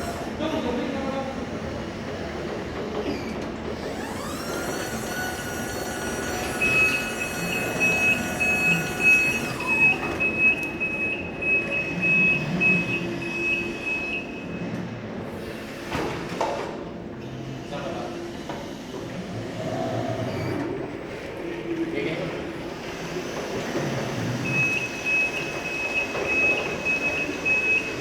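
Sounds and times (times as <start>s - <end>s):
electric motor whine: 3.9s - 10.2s
warning alarm beeping: 6.3s - 14.6s.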